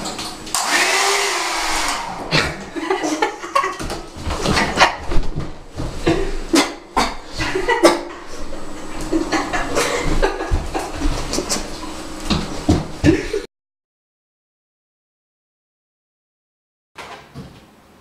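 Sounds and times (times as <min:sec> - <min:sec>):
hair dryer blowing: 0:00.5 - 0:03.6.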